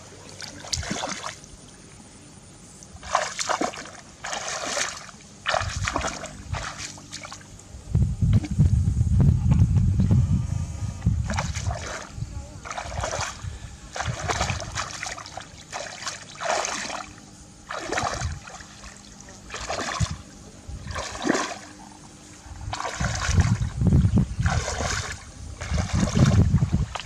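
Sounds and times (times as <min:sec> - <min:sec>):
heavy low thumping splashes: 0:00.0 - 0:01.4, 0:03.0 - 0:07.4, 0:08.0 - 0:21.7, 0:22.5 - 0:27.0
water splashing and sloshing: 0:00.0 - 0:01.8, 0:02.8 - 0:07.6, 0:11.2 - 0:27.0.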